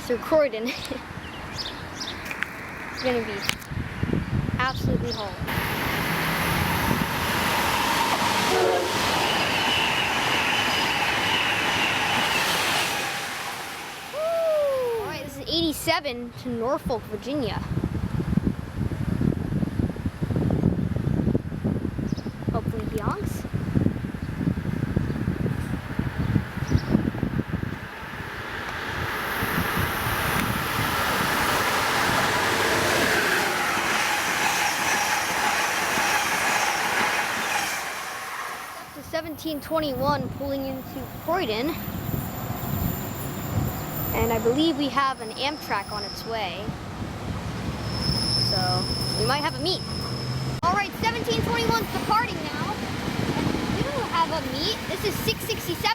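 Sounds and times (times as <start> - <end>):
high-speed train passing: 5.4 - 15.8, 23.6 - 55.9.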